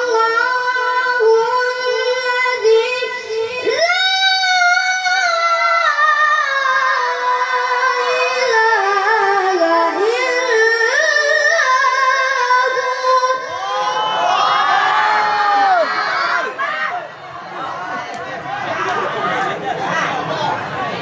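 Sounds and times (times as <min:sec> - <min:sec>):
child chanting melodic recitation: 0:00.0 - 0:13.5.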